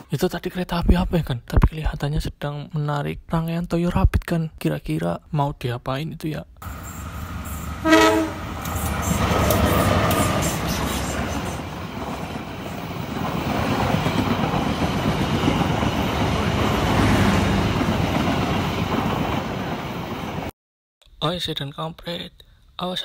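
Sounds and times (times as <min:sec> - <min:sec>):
train wheels clattering over rails: 0:08.5 - 0:20.1.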